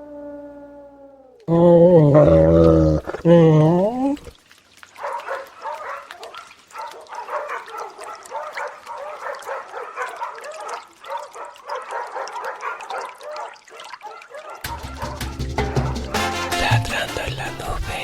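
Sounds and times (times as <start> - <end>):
dogs barking: 4.9 - 16.4.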